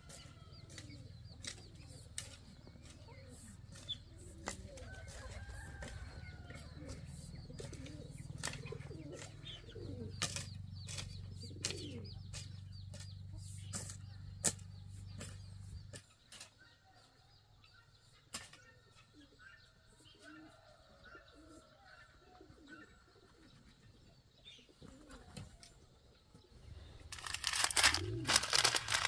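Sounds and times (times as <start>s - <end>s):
pigeons cooing: 0.0s - 14.0s, 20.2s - 25.7s, 26.6s - 29.0s
small birds chirping: 0.0s - 29.0s.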